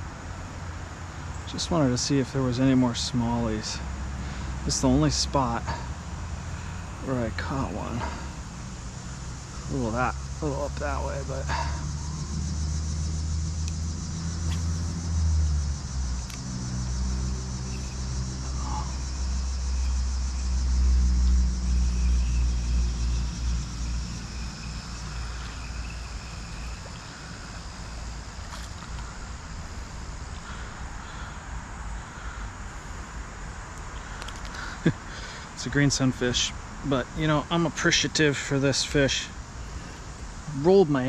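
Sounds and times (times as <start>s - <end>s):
high-pitched insect drone: 1.3s - 41.0s
vehicle engine passing by: 3.7s - 30.6s.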